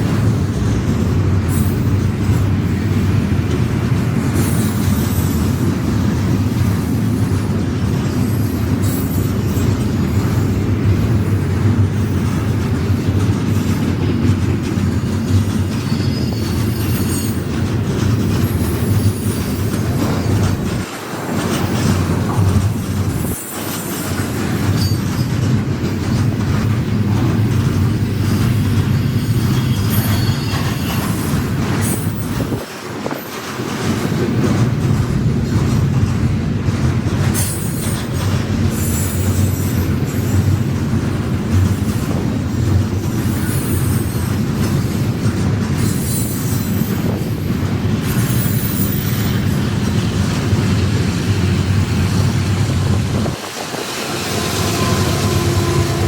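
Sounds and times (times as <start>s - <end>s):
freight train rumbling on rails: 0.0s - 56.0s
high-pitched wheel squeal: 15.8s - 17.4s, 28.3s - 32.4s.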